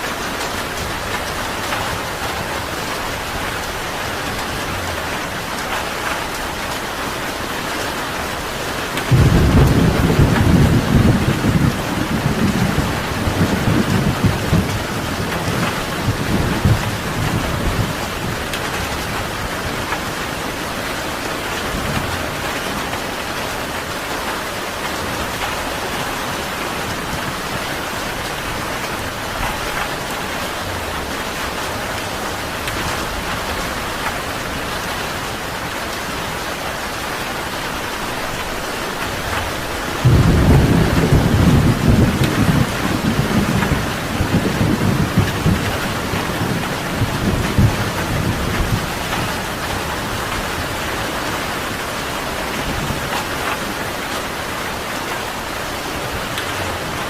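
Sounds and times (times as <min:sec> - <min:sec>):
steady rain: 0:00.0 - 0:57.0
thunder crack rolling: 0:09.0 - 0:19.3, 0:39.4 - 0:50.4.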